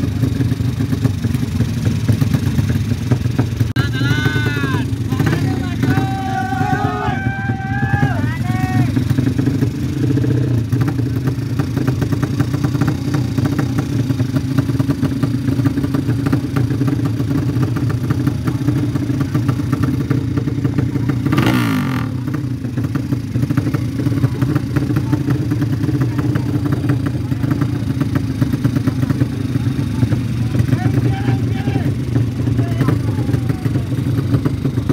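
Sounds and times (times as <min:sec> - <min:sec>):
motorcycle engines running roughly: 0:00.0 - 0:34.9
motorcycle passing by: 0:21.0 - 0:22.2.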